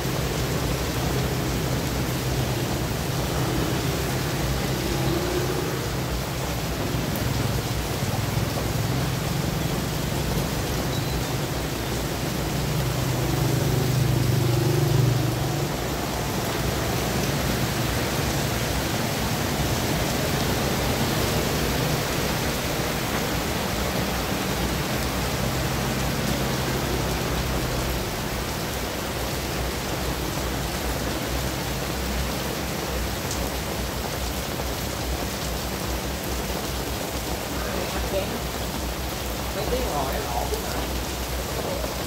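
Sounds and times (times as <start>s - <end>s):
motorbikes passing: 0.0s - 33.0s
heavy rain on a wet road: 0.0s - 42.0s
traffic on wet road: 0.0s - 42.0s.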